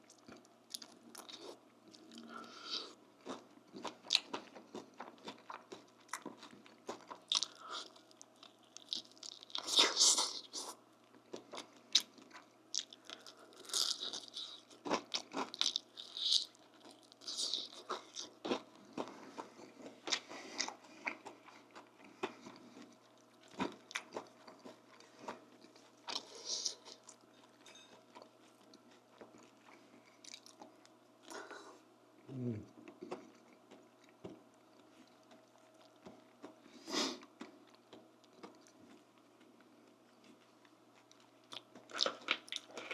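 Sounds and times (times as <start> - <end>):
person chewing with mouth clicks: 0.0 - 27.2, 32.3 - 42.9
crisp crunches of bites: 12.8 - 19.1.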